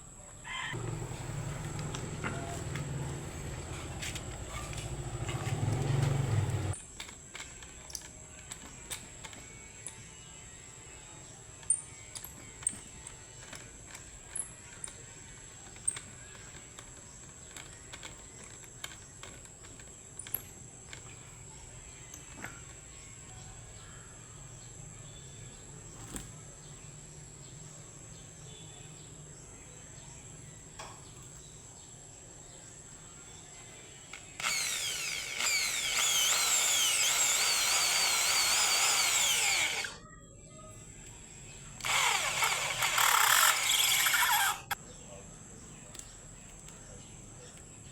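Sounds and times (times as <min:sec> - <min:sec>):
electric power tool cutting wood: 0:00.8 - 0:06.8, 0:34.2 - 0:40.0, 0:41.8 - 0:44.8.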